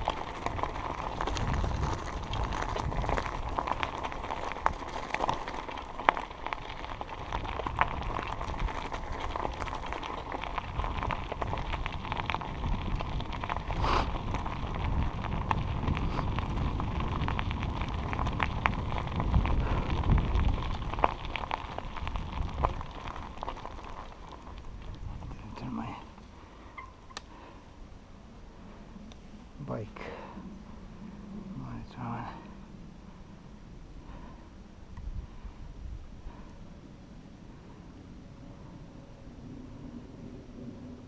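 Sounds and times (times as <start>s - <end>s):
tyres crackling on ground: 0.0s - 36.7s
wind rumble on microphone: 0.0s - 41.0s
bike clicks and knocks: 26.7s - 27.3s.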